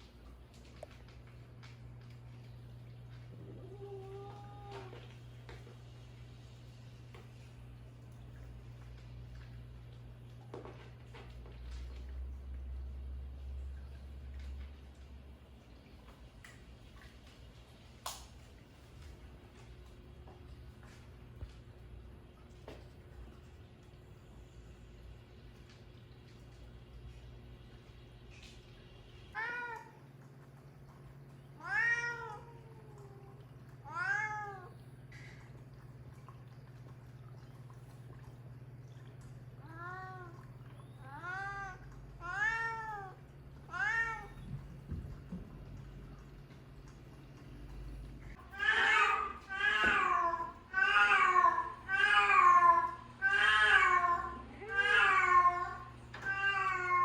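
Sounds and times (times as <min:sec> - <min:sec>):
steady low hum: 0:00.0 - 0:57.0
cat meowing: 0:31.6 - 0:34.7, 0:41.0 - 0:44.5.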